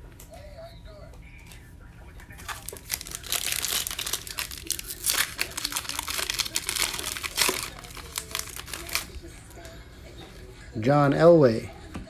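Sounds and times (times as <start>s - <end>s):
plastic wrapper tearing and crinkling: 2.3s - 9.6s.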